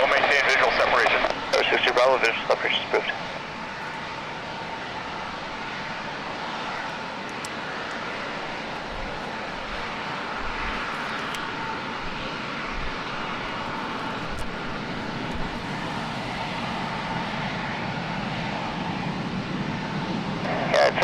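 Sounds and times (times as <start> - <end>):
faint high whine: 0.0 - 19.0
jet engines running: 0.0 - 21.0.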